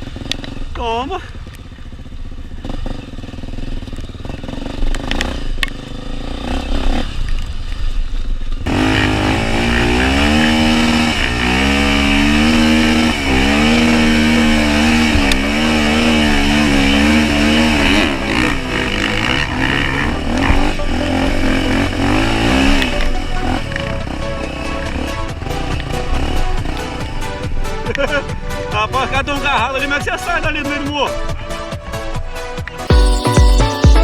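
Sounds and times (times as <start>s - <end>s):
motorcycle engine revving: 0.0s - 30.5s.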